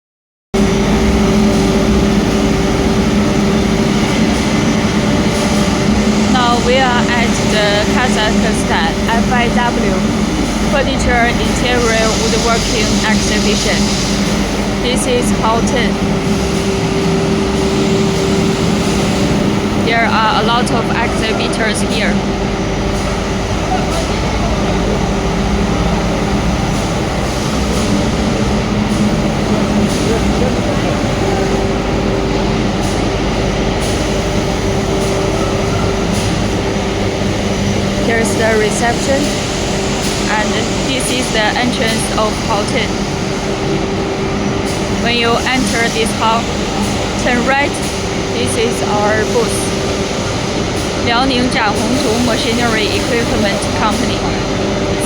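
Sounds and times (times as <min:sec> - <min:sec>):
busy exhibition hall din: 0:00.6 - 0:55.0
low mechanical hum: 0:00.6 - 0:55.0.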